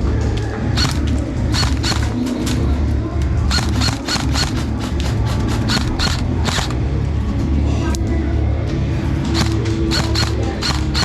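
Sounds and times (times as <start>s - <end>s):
airsoft gun shots: 0.8s - 2.8s, 3.5s - 6.8s, 9.3s - 11.0s.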